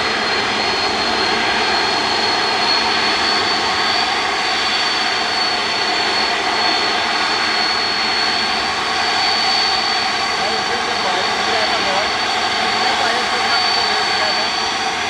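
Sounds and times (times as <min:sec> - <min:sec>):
high-pitched engine whine: 0:00.0 - 0:15.0
jet engines roaring: 0:00.0 - 0:15.0.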